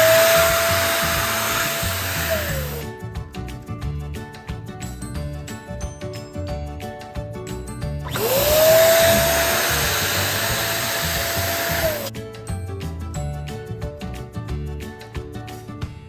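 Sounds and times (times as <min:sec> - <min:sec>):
electric air pump running: 0:00.0 - 0:02.9, 0:08.0 - 0:12.1
background music with steady beat: 0:00.0 - 0:16.0.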